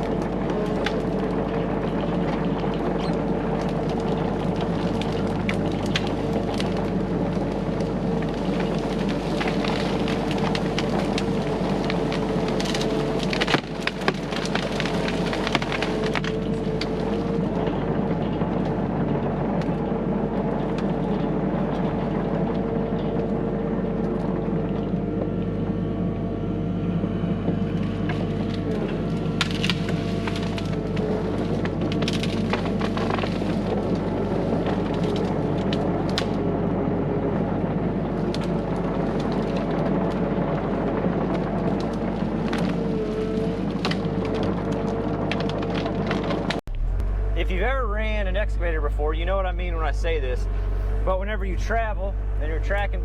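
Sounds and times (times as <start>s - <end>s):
clicks and cracks: 0.0s - 18.8s, 28.0s - 36.4s, 38.2s - 47.1s
excavator engine running under load: 0.0s - 53.0s.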